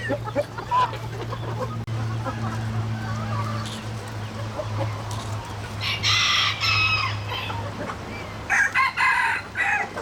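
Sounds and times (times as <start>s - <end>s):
rooster crowing: 8.5s - 10.0s.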